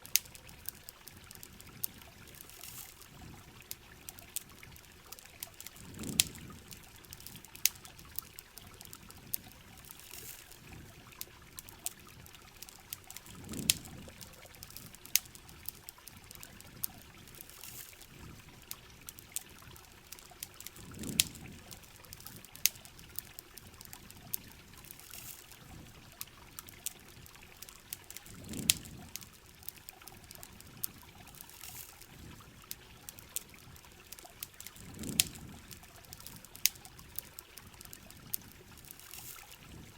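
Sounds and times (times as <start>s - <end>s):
campfire crackling and popping: 0.0s - 39.9s
steady rain: 0.0s - 39.9s.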